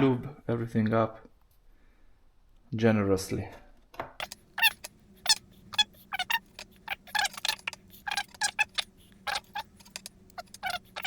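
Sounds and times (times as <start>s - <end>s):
faint steady hum: 4.2s - 11.0s.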